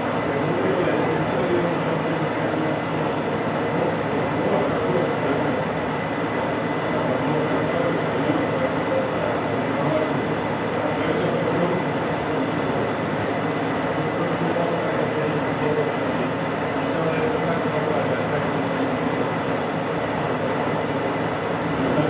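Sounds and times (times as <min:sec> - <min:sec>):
metalworking machine running: 0:00.0 - 0:22.0.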